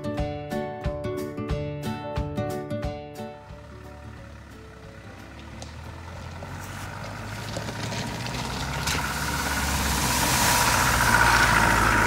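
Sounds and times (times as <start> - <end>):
diesel engine running: 3.0 - 12.0
water splashing around tyres: 4.7 - 12.0.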